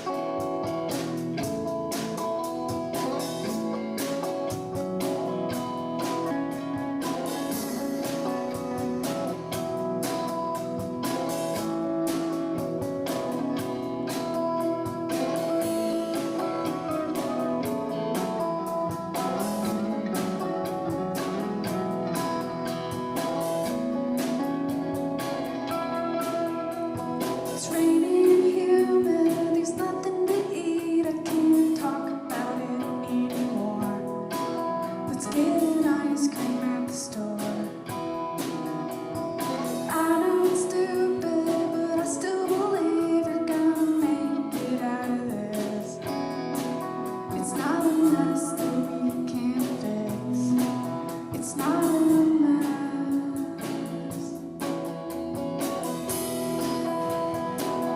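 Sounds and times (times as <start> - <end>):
drums: 0.0 - 57.9
guitar: 0.0 - 57.9
woman singing: 13.0 - 23.0, 25.6 - 54.9.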